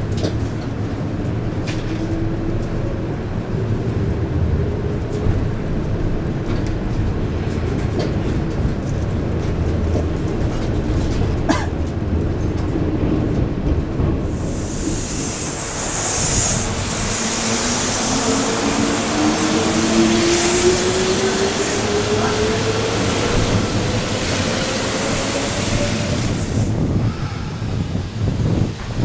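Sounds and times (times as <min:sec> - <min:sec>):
electric train passing: 0:12.6 - 0:29.0.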